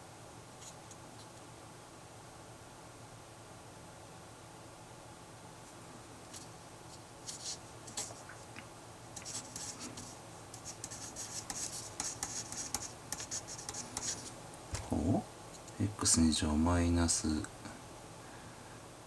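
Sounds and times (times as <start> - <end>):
pen scratching on paper: 9.2 - 14.3.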